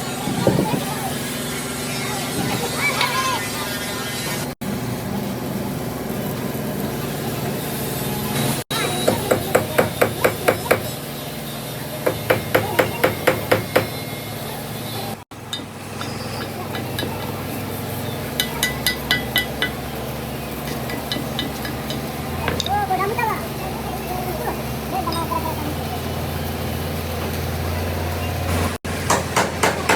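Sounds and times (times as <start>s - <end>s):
hammer striking metal: 8.7s - 11.0s, 12.0s - 14.1s, 15.5s - 17.4s, 18.4s - 19.9s, 20.7s - 22.7s, 29.0s - 29.9s.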